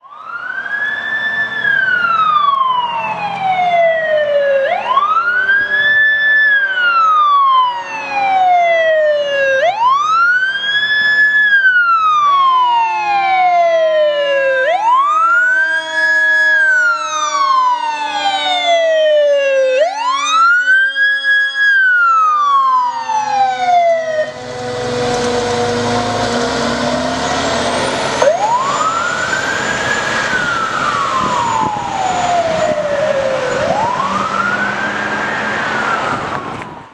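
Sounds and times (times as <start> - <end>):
fire engine siren wailing: 0.0 - 36.9
loud rushing noise: 24.1 - 36.9.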